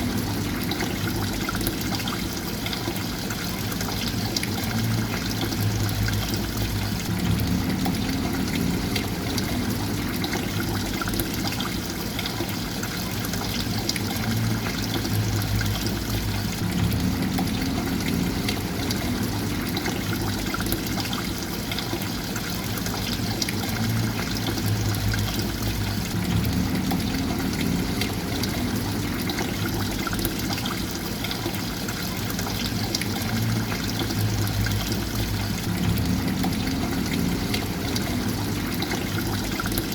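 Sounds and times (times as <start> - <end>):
water flowing and trickling: 0.0 - 39.9
low hum: 4.8 - 11.1, 14.2 - 20.9, 23.8 - 30.5, 33.4 - 39.9.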